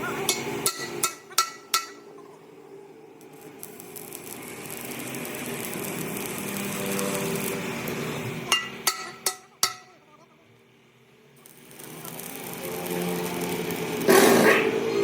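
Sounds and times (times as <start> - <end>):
power tool on steel: 3.2 - 9.2, 11.4 - 15.0.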